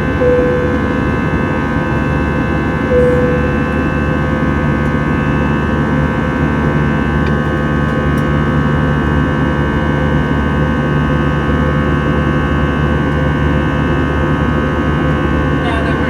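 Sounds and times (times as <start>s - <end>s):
whining tones: 0.0s - 6.4s
jet engine drone in cabin: 0.0s - 16.0s.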